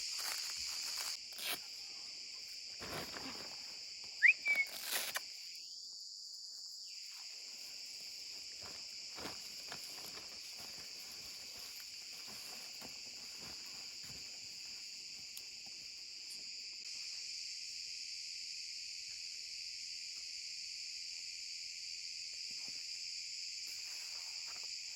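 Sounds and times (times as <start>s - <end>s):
insects chirring: 0.0s - 24.9s.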